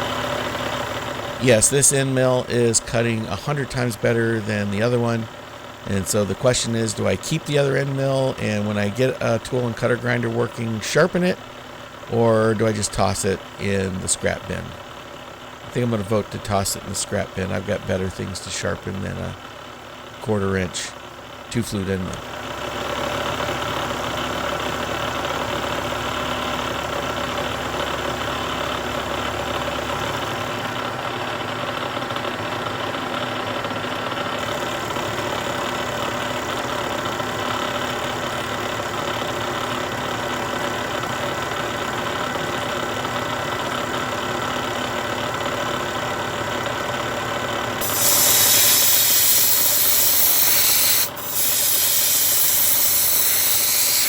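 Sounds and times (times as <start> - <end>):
loud spraying hiss: 47.8 - 54.0
milling machine cutting steel: 47.8 - 54.0.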